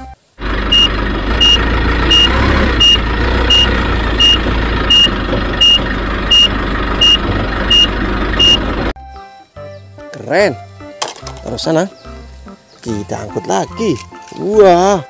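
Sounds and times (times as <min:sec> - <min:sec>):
vehicle engine rumble: 0:00.0 - 0:09.0
reversing alarm beeping: 0:00.7 - 0:08.7.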